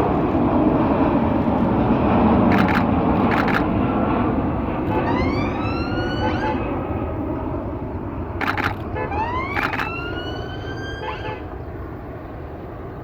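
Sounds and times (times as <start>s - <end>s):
outdoor background noise: 0.0s - 13.0s
camera shutter clicks: 2.5s - 3.7s, 8.4s - 10.1s
rising whine: 4.6s - 7.2s, 8.4s - 11.7s.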